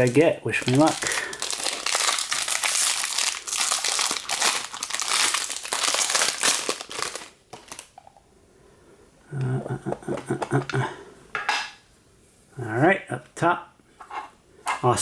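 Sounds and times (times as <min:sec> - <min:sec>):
wrapper crinkling and tearing: 0:00.0 - 0:08.0.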